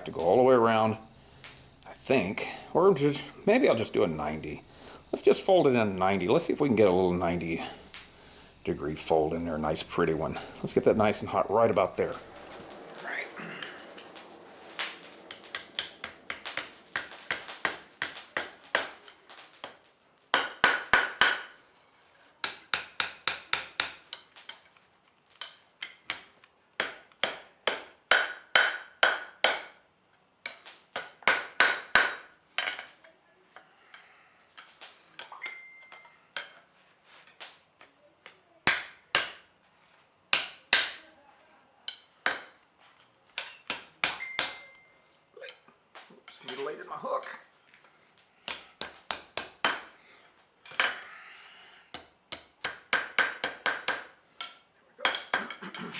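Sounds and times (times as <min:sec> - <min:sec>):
hammer striking steel on anvil: 0:14.8 - 0:19.1, 0:20.3 - 0:24.3, 0:25.4 - 0:33.0, 0:38.6 - 0:42.8, 0:43.4 - 0:45.6, 0:48.4 - 0:55.7
high ring from anvil: 0:20.4 - 0:24.3, 0:27.9 - 0:34.2, 0:35.4 - 0:36.7, 0:38.6 - 0:47.5, 0:48.4 - 0:55.9.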